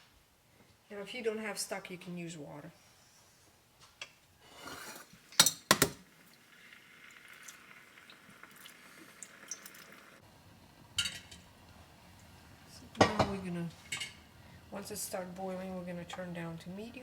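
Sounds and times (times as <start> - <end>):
liquid pouring into a pan: 4.6 - 10.2
metal pot clanking: 11.0 - 11.4.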